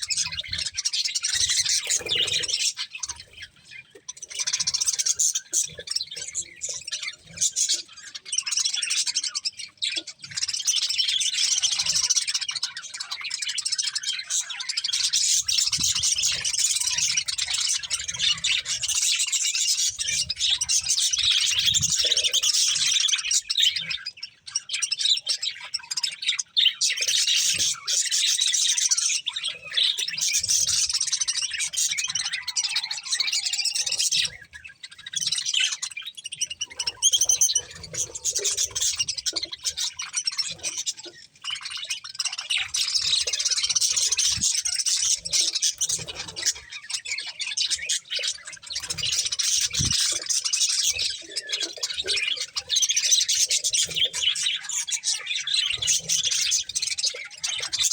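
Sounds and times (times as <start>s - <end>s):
budgerigars chirping and chattering: 0.0s - 57.9s.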